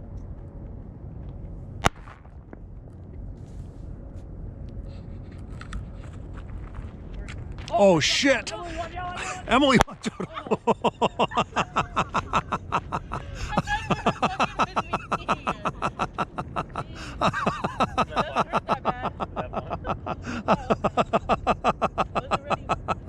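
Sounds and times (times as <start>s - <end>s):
person laughing: 8.5s - 23.0s.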